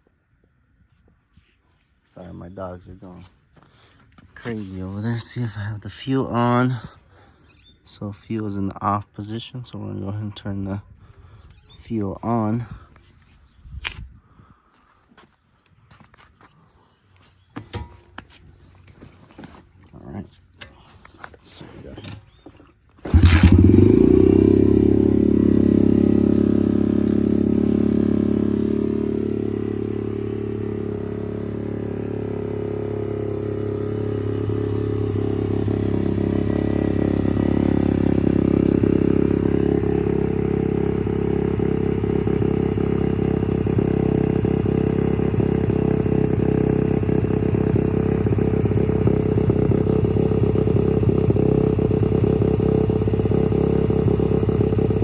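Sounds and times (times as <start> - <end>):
motorbike engine kick start: 23.0 - 25.0
motorbike engine idling: 23.1 - 55.0.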